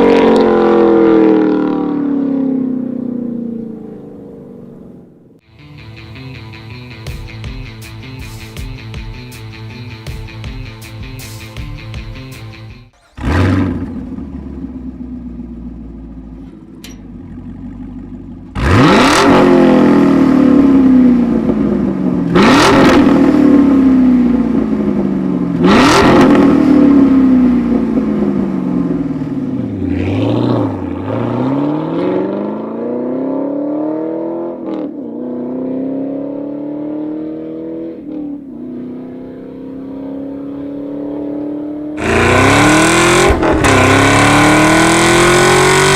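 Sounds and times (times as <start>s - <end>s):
car engine accelerating with upshifts: 0.0s - 5.4s, 13.0s - 45.9s
car engine revving: 12.4s - 45.9s.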